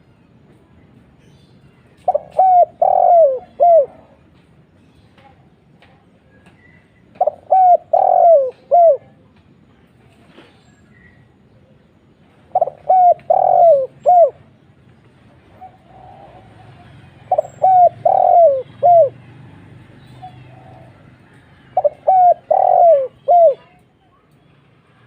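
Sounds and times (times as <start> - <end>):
dove cooing: 2.1 - 4.2, 7.2 - 9.2, 12.5 - 14.5, 15.5 - 19.3, 20.0 - 23.8.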